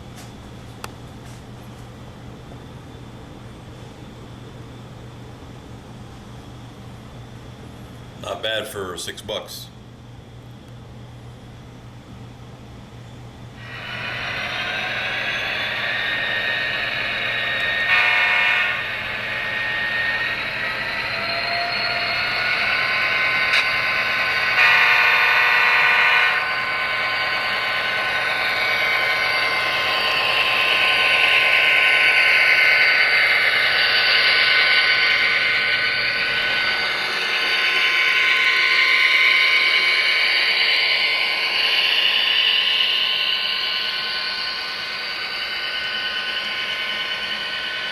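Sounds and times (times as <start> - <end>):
model locomotive running: 13.5 - 47.9
train horn blasts: 13.8 - 21.1, 21.8 - 29.7.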